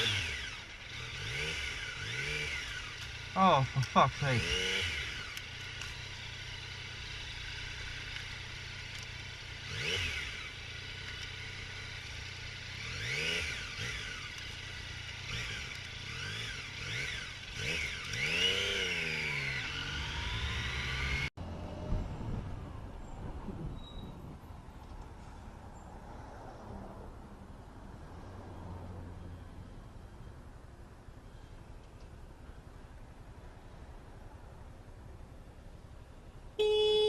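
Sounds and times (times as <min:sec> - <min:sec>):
motorcycle engine revving: 0:00.0 - 0:21.6.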